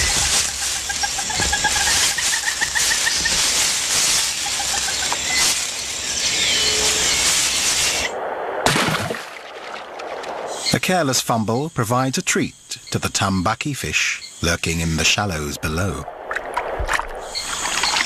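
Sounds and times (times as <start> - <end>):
loud rustle: 0.0 - 8.1
rapid chirping calls: 0.0 - 8.1, 10.5 - 16.0, 17.2 - 18.0
steady high-pitched hiss: 0.0 - 8.6, 10.4 - 18.0.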